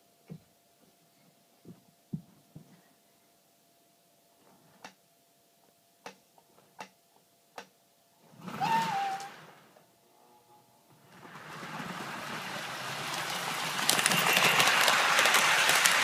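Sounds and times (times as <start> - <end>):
toy train sharp clicks: 13.0 - 16.0.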